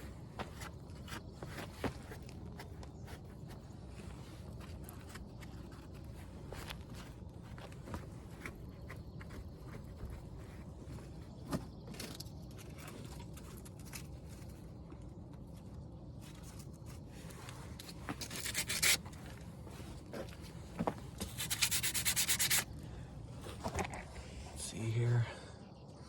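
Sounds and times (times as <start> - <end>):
sandpaper rubbing on metal: 18.3 - 19.0, 21.2 - 22.7.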